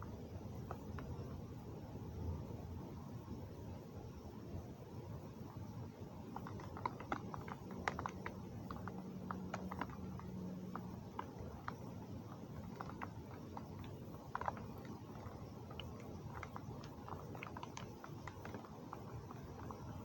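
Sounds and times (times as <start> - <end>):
faint low hum: 0.0 - 20.0
rain hiss: 4.0 - 20.0.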